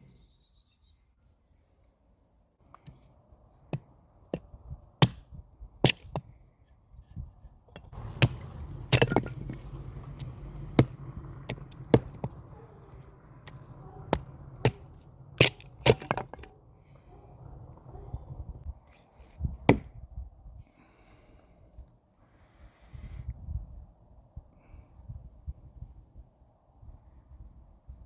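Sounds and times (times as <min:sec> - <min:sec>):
hatchet chopping wood: 0:03.7 - 0:06.3, 0:07.8 - 0:16.6, 0:19.7 - 0:20.0.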